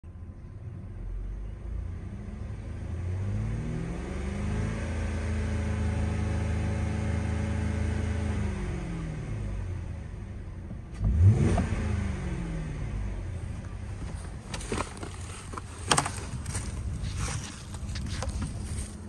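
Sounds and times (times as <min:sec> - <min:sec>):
car engine idling and revving: 0:00.0 - 0:19.0.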